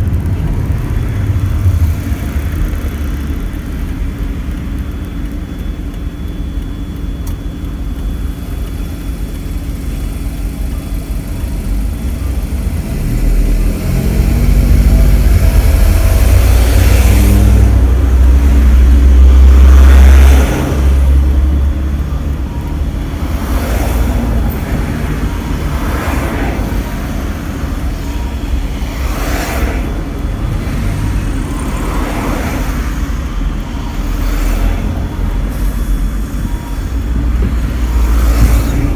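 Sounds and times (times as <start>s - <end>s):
car engine rumble: 0.0s - 38.9s.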